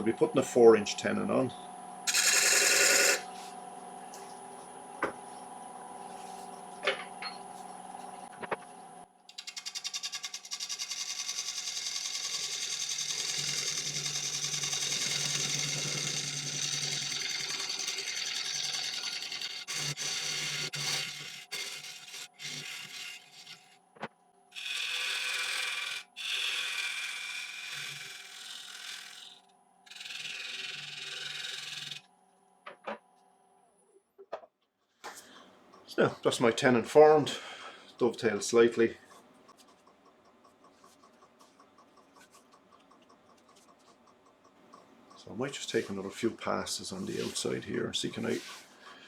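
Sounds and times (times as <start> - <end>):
turning tool scraping wood: 2.1 - 3.5, 9.3 - 23.8, 24.6 - 32.0, 45.2 - 49.0
wood lathe humming: 2.1 - 3.5, 9.3 - 23.7, 24.6 - 32.0.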